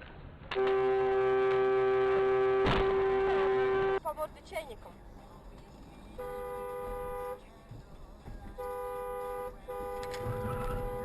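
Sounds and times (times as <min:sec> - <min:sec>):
low road noise: 0:00.0 - 0:11.0
car horn honking: 0:00.5 - 0:04.1, 0:06.2 - 0:07.5, 0:08.5 - 0:11.0.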